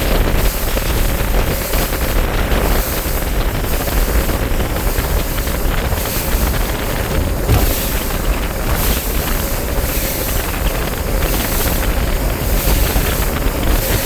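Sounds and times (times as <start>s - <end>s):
boat engine running: 0.0s - 14.0s
wind buffeting microphone: 0.0s - 14.0s
water washing: 6.2s - 14.0s.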